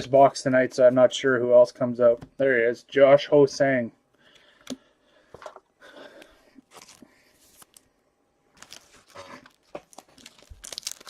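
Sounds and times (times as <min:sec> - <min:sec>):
trading cards rustling and clicking: 0:08.6 - 0:11.0.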